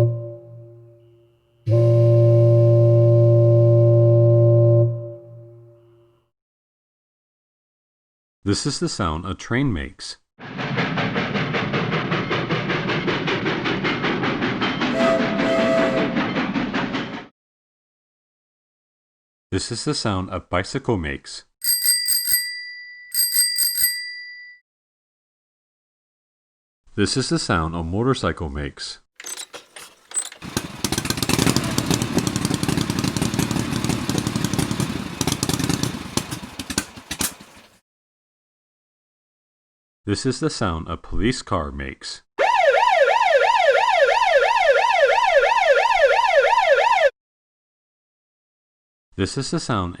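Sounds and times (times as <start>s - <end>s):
train horn blasts: 0.0s - 6.2s, 14.9s - 16.2s
train wheels clickety-clack: 10.4s - 17.3s, 29.6s - 37.8s
motorcycle engine running: 29.8s - 37.8s.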